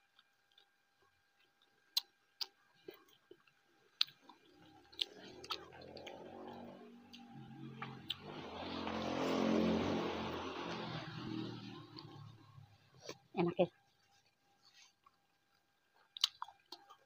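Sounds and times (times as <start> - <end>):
person chewing: 0.0 - 7.4, 14.0 - 17.0
vehicle engine: 4.6 - 13.2
mouth clicks and smacks: 16.1 - 17.0.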